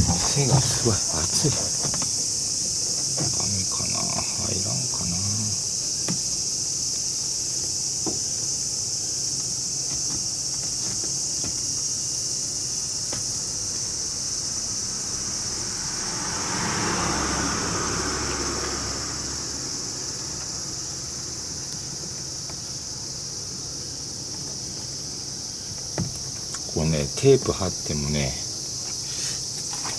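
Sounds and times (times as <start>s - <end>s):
insects chorus: 0.0s - 29.9s
vehicle passing: 14.6s - 21.4s.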